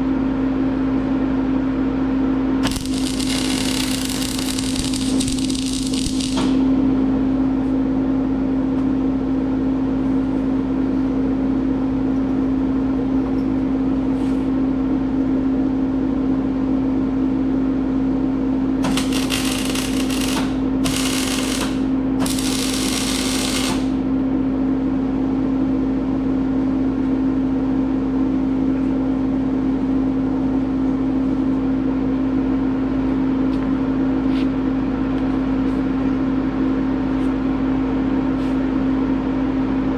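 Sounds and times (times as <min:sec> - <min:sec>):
steady hum: 0:00.0 - 0:39.9
arc welding crackle: 0:02.6 - 0:06.7, 0:18.8 - 0:24.1.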